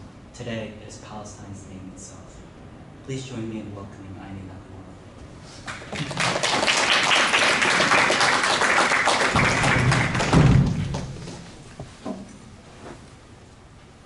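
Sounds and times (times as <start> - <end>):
audience applauding: 5.7 - 11.4
low thumps: 9.3 - 12.4.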